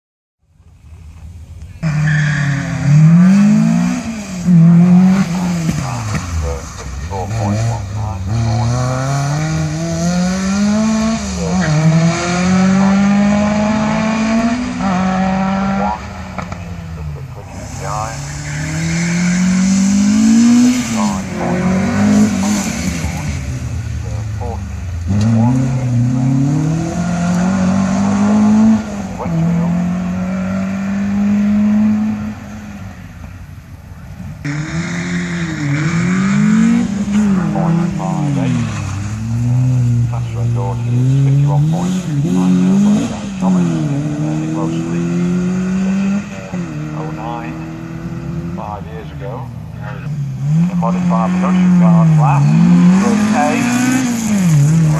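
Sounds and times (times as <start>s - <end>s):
race car engine accelerating: 1.8s - 33.1s, 34.3s - 54.9s.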